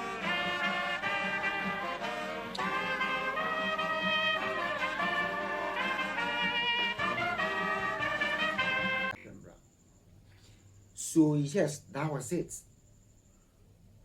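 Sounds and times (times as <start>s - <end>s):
brass playing slow chords: 0.0s - 9.2s.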